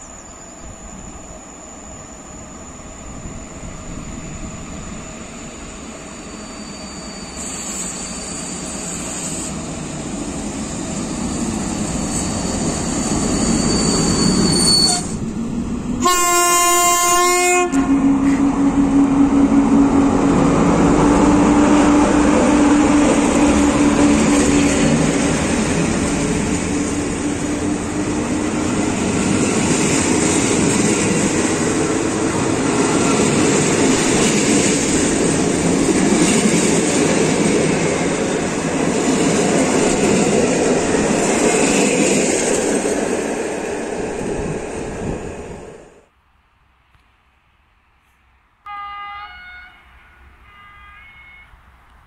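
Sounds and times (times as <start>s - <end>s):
electric locomotive passing: 0.0s - 46.1s
locomotive horn blast: 16.0s - 19.0s, 48.7s - 51.6s.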